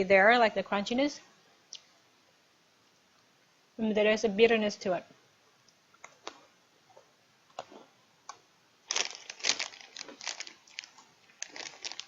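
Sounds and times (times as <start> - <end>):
biscuit stick crunching: 7.6 - 12.0.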